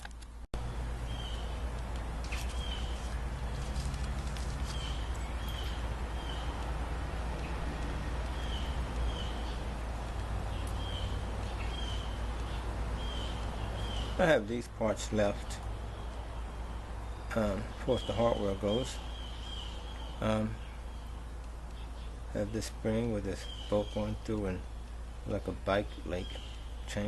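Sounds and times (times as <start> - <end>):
small bird chirping: 0.6 - 27.0
faint clicks: 6.4 - 12.6.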